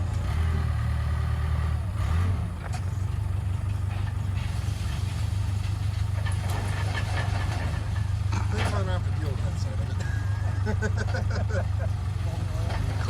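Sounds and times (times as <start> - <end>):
machinery droning: 0.0 - 13.0.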